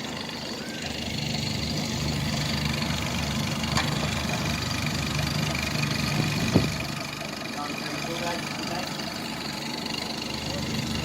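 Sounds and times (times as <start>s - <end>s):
outboard motors idling: 0.0s - 11.0s.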